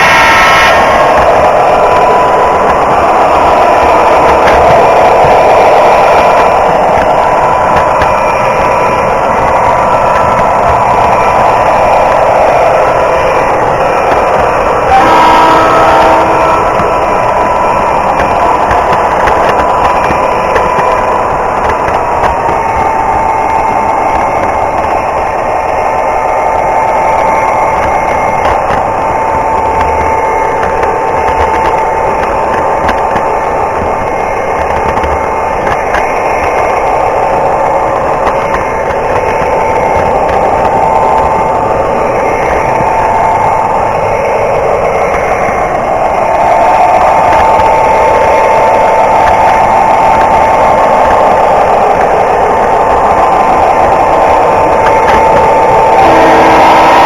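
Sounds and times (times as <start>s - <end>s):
train horn: 0.0s - 21.3s, 54.2s - 57.0s
model locomotive engine sound: 0.0s - 57.0s.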